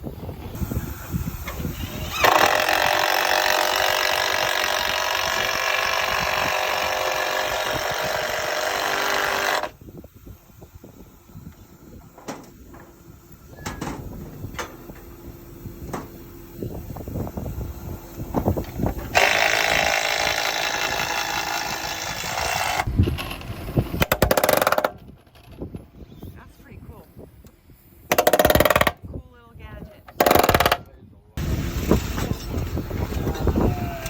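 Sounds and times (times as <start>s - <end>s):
pneumatic nailer rattling: 1.4s - 9.8s, 10.9s - 25.7s, 28.1s - 29.0s, 30.1s - 33.1s.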